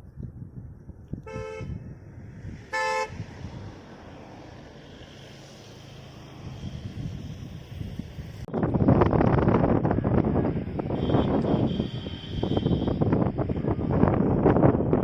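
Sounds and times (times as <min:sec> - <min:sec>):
low rumble of road noise: 0:00.0 - 0:15.0
vehicle horn honking: 0:01.2 - 0:01.8, 0:02.7 - 0:03.2, 0:10.9 - 0:13.1.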